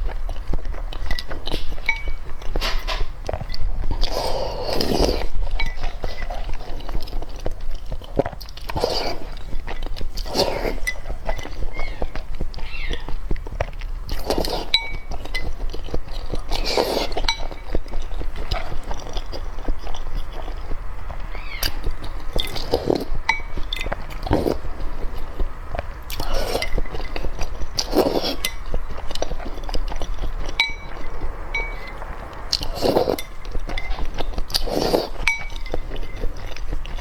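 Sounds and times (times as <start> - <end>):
utensils clinking against dishes: 1.1 - 3.6, 14.2 - 15.7, 26.1 - 28.6, 30.5 - 32.0, 32.8 - 36.6.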